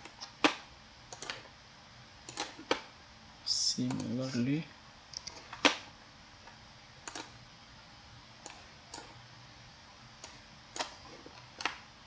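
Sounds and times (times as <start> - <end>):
computer mouse clicking: 0.0 - 1.5, 2.2 - 2.9, 7.0 - 7.4, 8.4 - 9.2, 10.2 - 11.8.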